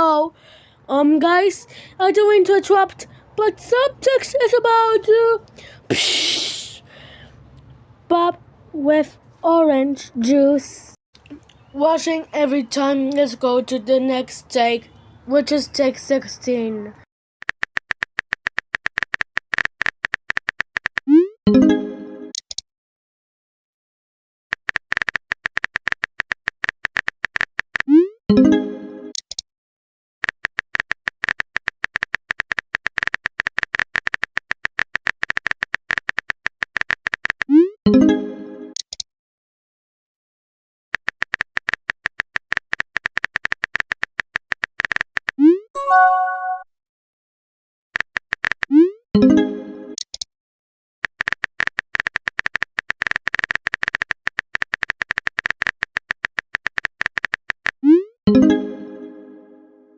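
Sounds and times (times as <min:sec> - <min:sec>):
fast sharp high clicks: 0:17.4 - 0:21.1, 0:24.5 - 0:27.9, 0:30.2 - 0:37.5, 0:40.9 - 0:45.4, 0:48.0 - 0:48.7, 0:51.0 - 0:57.8
pitched electronic tone: 0:45.8 - 0:46.6.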